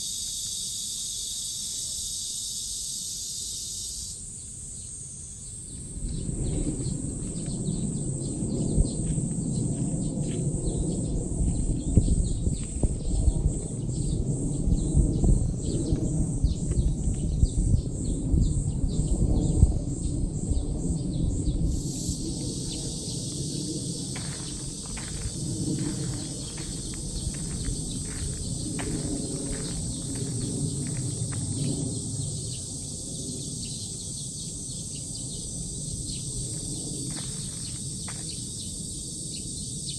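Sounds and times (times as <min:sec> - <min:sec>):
cicadas buzzing: 0:00.0 - 0:39.9
low rumble: 0:05.8 - 0:32.4.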